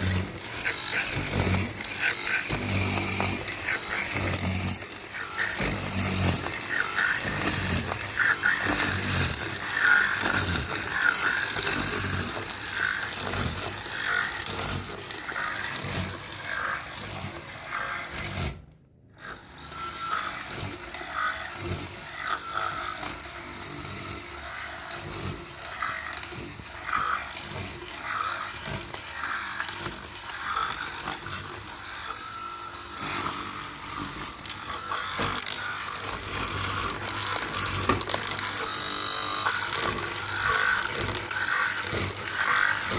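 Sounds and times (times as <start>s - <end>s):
cutting machine clattering on wood: 0.0s - 16.4s.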